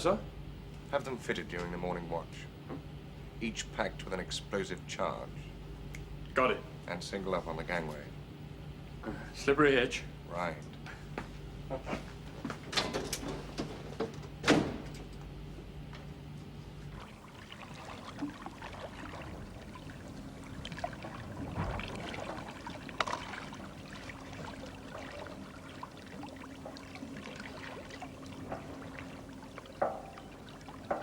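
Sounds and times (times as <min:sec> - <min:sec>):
faint steady hum: 0:00.0 - 0:31.0
water splashing and trickling: 0:16.8 - 0:31.0.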